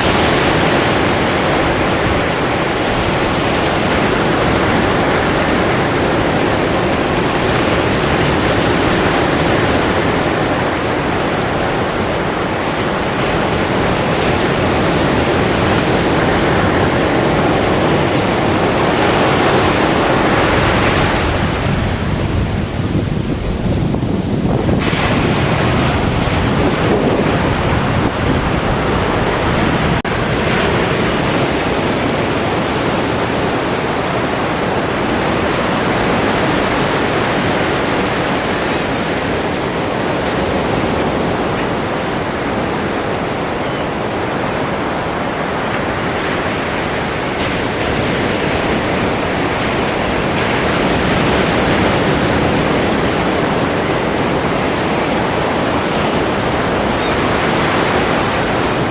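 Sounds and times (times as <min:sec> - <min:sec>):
ocean waves breaking: 0:00.0 - 0:58.9.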